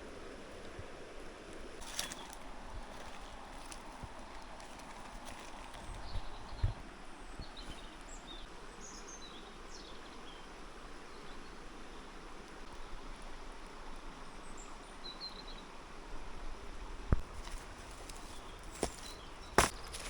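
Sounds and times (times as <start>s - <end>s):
river rushing: 1.2s - 5.9s.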